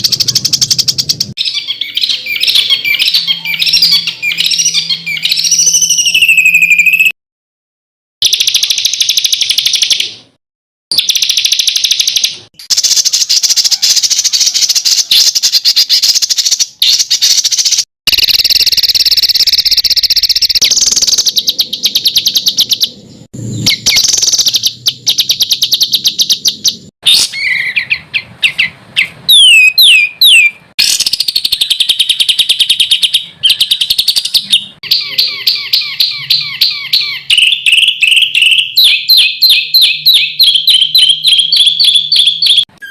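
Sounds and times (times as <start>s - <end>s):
downward-sweeping bird whistles: 1.4s - 7.1s, 18.5s - 42.9s
songbird fast harsh trills: 10.9s - 42.9s.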